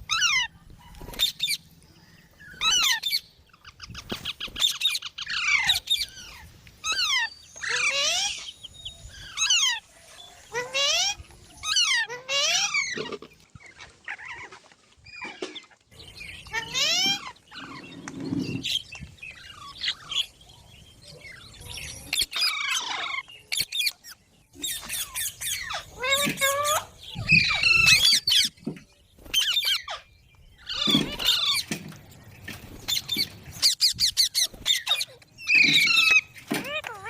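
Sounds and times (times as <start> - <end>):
parrot squawking and screeching: 0.0 - 0.5, 2.6 - 8.5, 9.3 - 9.8, 10.5 - 13.2, 16.5 - 17.9, 22.1 - 24.0, 24.6 - 28.6, 29.3 - 31.7, 32.9 - 37.0.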